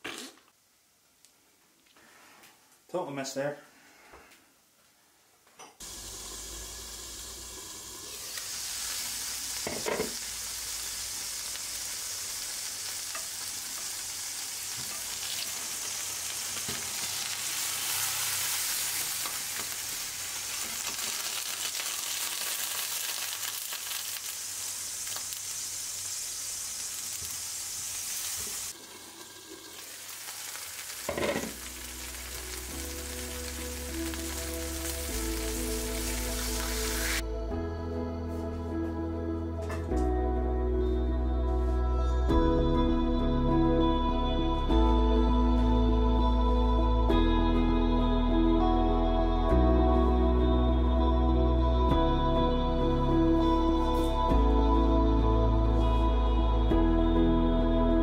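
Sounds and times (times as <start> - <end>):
patties sizzling in a pan: 5.8 - 37.2
light background music: 31.1 - 58.0.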